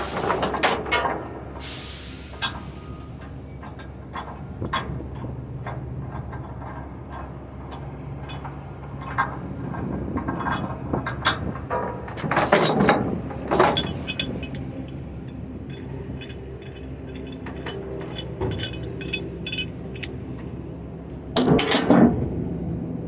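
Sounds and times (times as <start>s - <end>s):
steel chains clinking and rattling: 0.0s - 1.2s, 10.4s - 22.2s.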